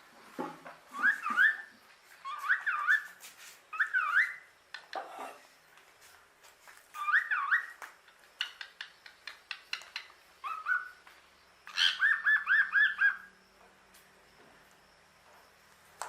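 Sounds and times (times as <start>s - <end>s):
parrot whistling: 0.9s - 3.1s, 3.7s - 4.5s, 7.0s - 7.8s, 10.4s - 11.0s, 11.7s - 13.3s.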